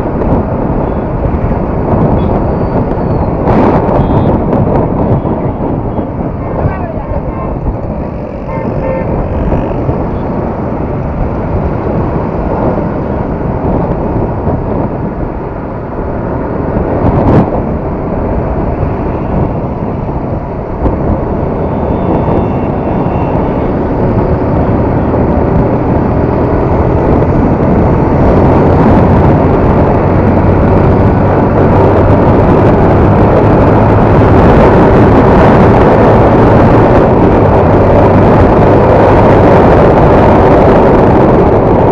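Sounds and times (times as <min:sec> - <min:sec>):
road and wind noise: 0:00.0 - 0:41.9
motorcycle engine running: 0:00.6 - 0:14.9.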